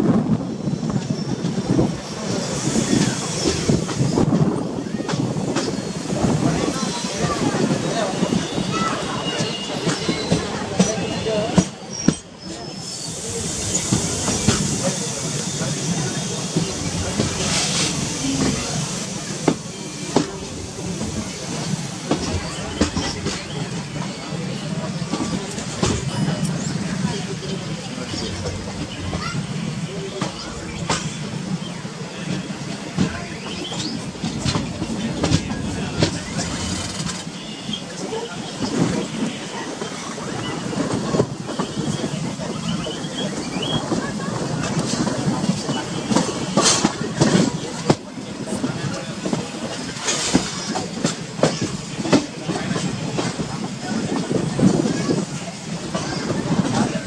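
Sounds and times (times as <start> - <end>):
train coaches rolling on track: 0.0 - 57.0
rail-joint clatter: 13.5 - 24.2, 24.8 - 31.3, 32.3 - 57.0.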